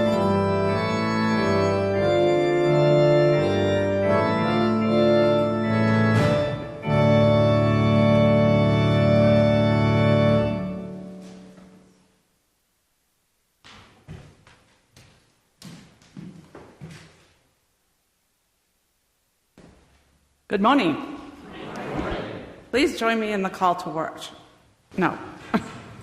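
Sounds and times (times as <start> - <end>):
organ sustained chords: 0.0 - 11.8.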